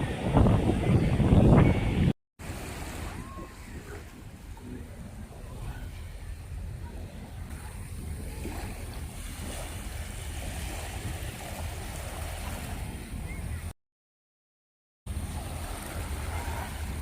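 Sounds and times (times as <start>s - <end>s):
gusty wind buffeting microphone: 0.0s - 13.7s
surf washing onto beach: 2.4s - 13.7s, 15.1s - 17.0s.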